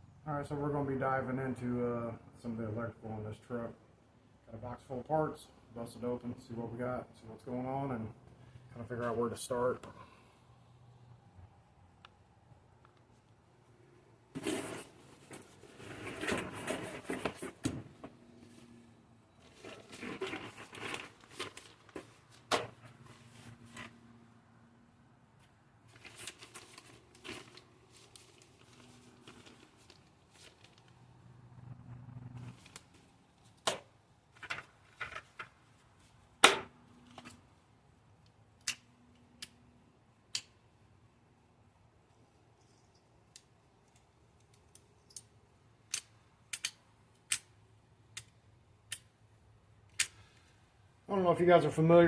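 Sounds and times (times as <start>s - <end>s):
plastic packaging rustling: 19.4s - 23.9s, 25.9s - 31.0s.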